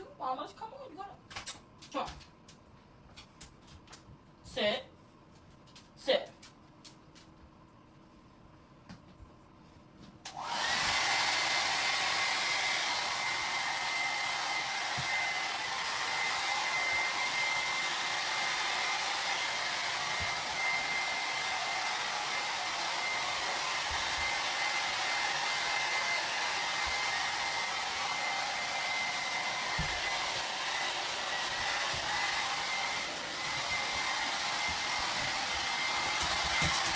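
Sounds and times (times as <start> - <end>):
hair dryer running: 10.2 - 36.9.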